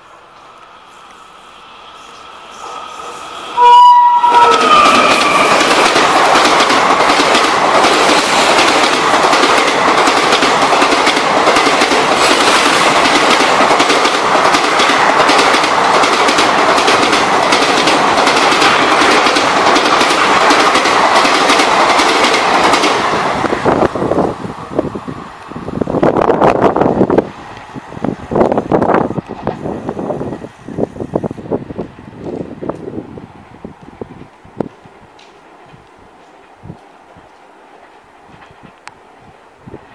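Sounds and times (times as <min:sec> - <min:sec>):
train rushing past: 0:00.0 - 0:39.9
locomotive horn blast: 0:02.6 - 0:05.6
wheels clacking over rail joints: 0:04.3 - 0:23.2, 0:35.2 - 0:38.9.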